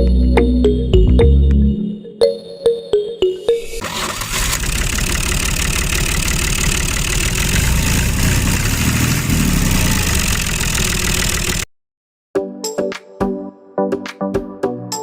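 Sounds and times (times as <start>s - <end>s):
rough rattling motor: 3.8s - 11.7s.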